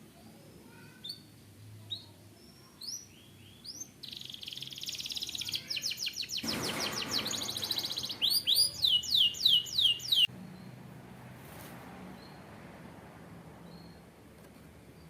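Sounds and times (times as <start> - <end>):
canary trilling: 1.9 - 10.3
brief noise: 6.4 - 8.6.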